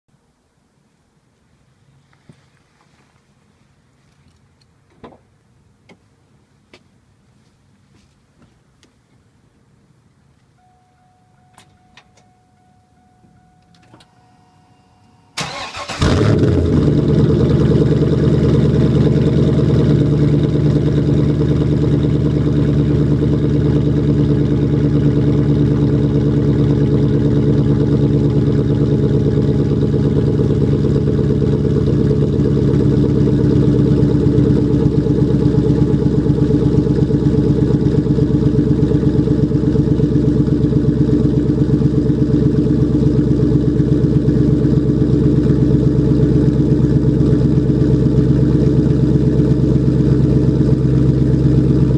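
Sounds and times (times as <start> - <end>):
car engine idling: 10.6 - 51.9.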